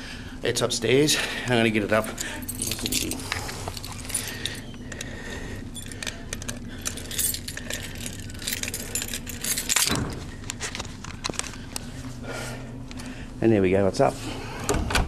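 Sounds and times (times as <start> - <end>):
low hum: 0.0 - 13.4
metallic jangling and clinking: 1.8 - 5.0, 5.7 - 11.6.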